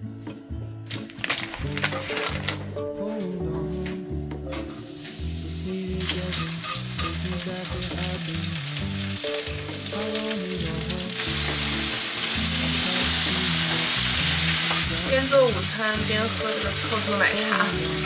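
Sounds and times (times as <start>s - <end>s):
background music: 0.0s - 18.0s
frying pan sizzling and crackling: 4.8s - 18.0s.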